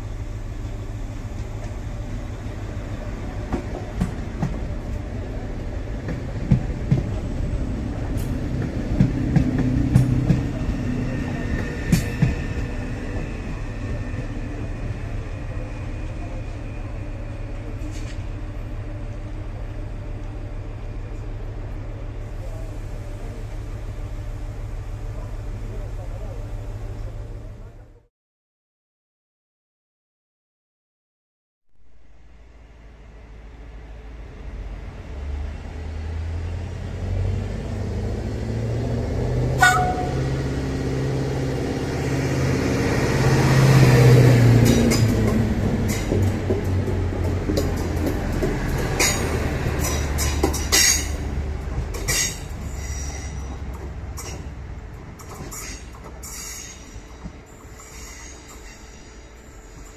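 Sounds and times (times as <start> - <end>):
train rumbling: 0.0 - 28.1, 31.8 - 59.9
train horn toot: 39.6 - 40.4
wheels clicking over rail joints: 44.6 - 57.4.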